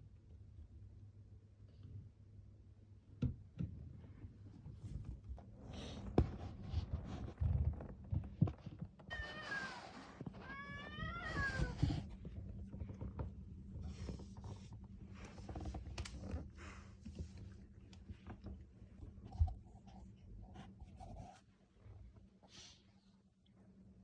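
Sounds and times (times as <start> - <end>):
cat yowling: 9.1 - 12.0.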